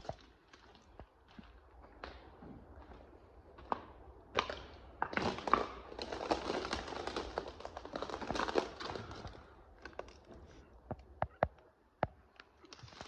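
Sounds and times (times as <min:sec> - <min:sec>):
rustling and crinkling material: 0:05.2 - 0:10.8, 0:12.4 - 0:13.0.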